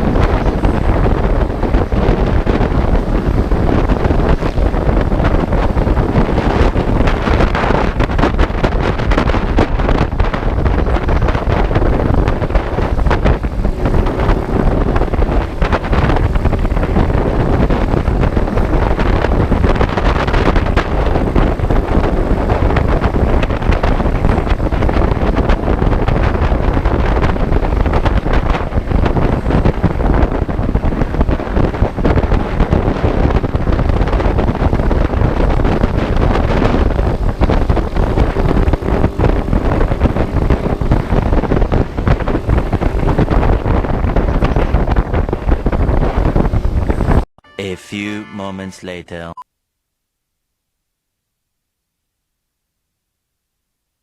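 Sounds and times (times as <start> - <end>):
motorcycle running: 0.0 - 47.2
wind rushing on microphone: 0.0 - 47.3
road noise: 9.8 - 47.3.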